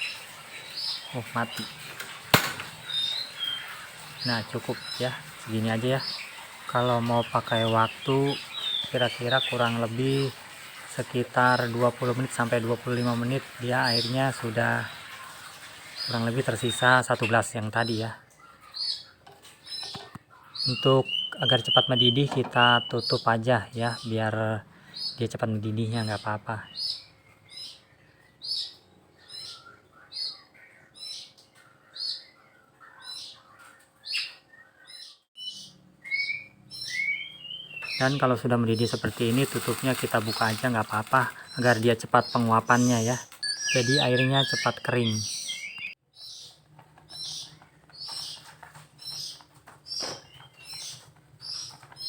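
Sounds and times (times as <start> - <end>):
songbird chirping: 0.0 - 52.0
single knock: 2.3 - 2.7.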